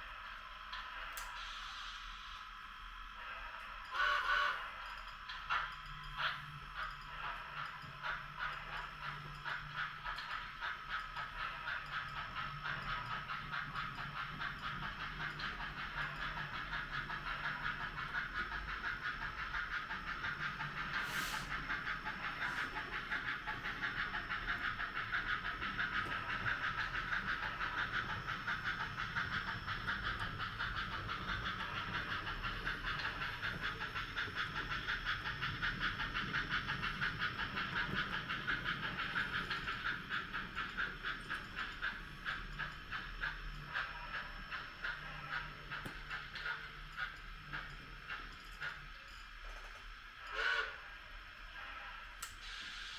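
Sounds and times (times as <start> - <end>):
model steam locomotive chuffing: 0.0 - 52.9
rail clicks: 0.1 - 1.5, 3.6 - 50.8.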